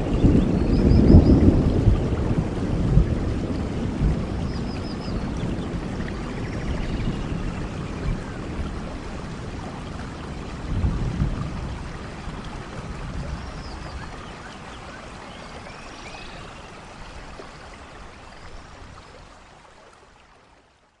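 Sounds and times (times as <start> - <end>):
low thunder rumble: 0.0 - 14.2
steady rain: 0.0 - 21.0.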